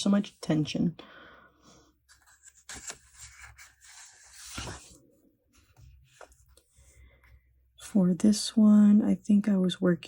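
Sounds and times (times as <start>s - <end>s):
paper rustling: 2.1s - 5.0s.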